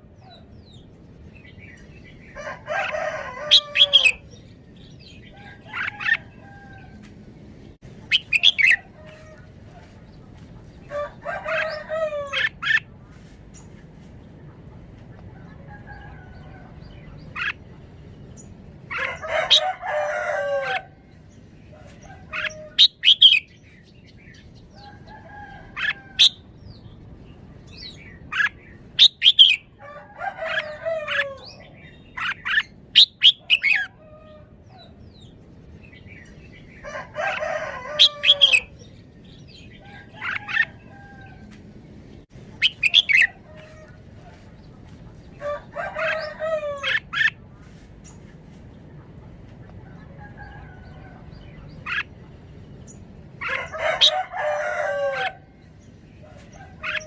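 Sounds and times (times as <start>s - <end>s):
rooster crowing: 2.4s - 4.3s, 10.9s - 12.6s, 18.9s - 21.0s, 29.8s - 31.6s, 36.8s - 38.8s, 45.4s - 47.1s, 53.4s - 55.5s.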